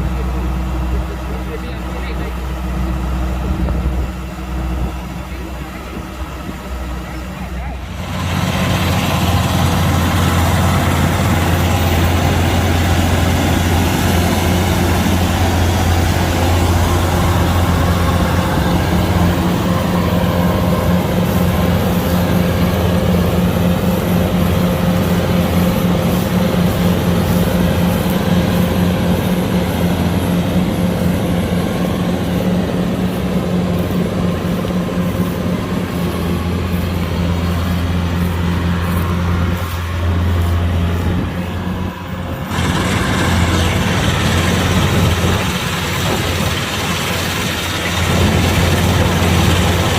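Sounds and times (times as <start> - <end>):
combine harvester engine running: 0.0 - 49.9.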